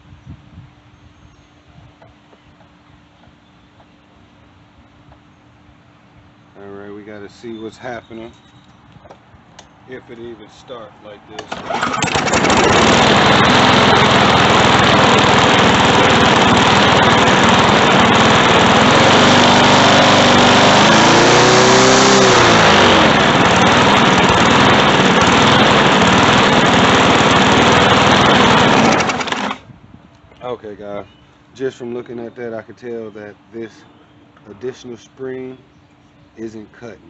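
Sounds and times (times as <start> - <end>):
lawn mower engine running: 11.3 - 29.7.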